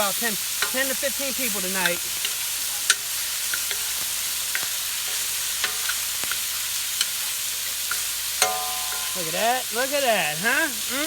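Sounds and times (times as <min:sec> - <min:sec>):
chicken sizzling in hot oil: 0:00.0 - 0:11.0
utensil tapping on wok: 0:00.6 - 0:00.9, 0:01.8 - 0:07.2, 0:07.8 - 0:09.5.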